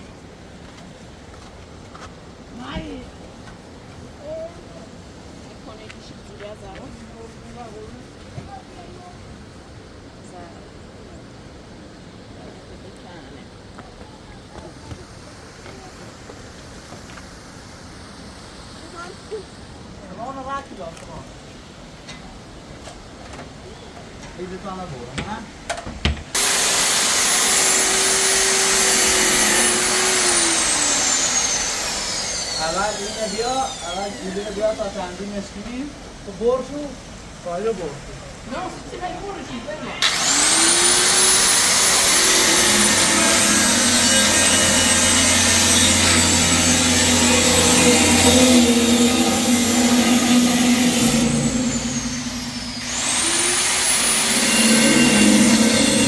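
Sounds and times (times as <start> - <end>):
power tool motor running: 26.4 - 35.6, 40.0 - 56.0
electric machine whining and hissing: 26.4 - 35.7, 40.0 - 56.0.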